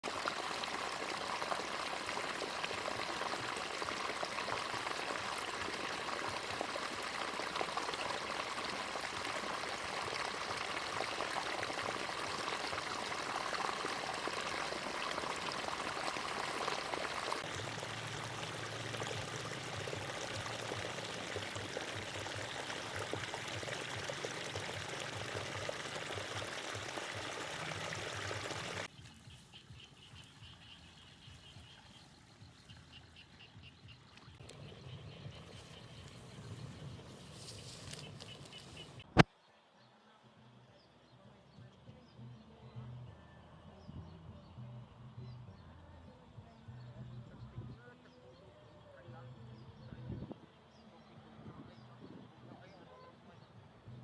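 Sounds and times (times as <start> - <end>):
water flowing through channel: 0.0 - 28.9, 34.2 - 39.3.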